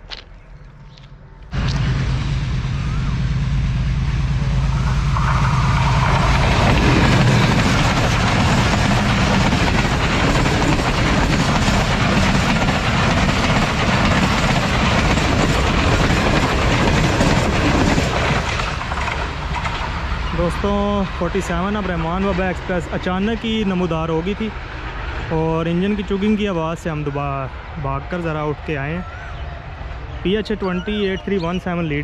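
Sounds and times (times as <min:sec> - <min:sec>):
diesel locomotive engine: 0:00.0 - 0:32.0
train wheels rumbling on rails: 0:01.0 - 0:28.6.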